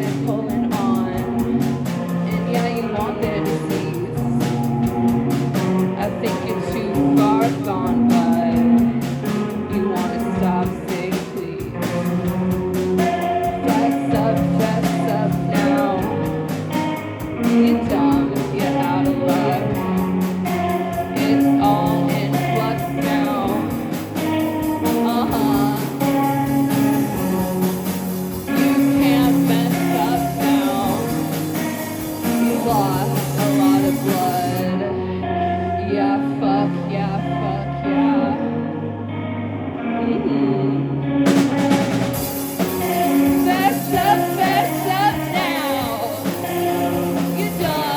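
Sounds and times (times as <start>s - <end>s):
guitar: 0.0s - 47.9s
person singing: 0.0s - 47.9s
drum strikes: 41.3s - 47.9s.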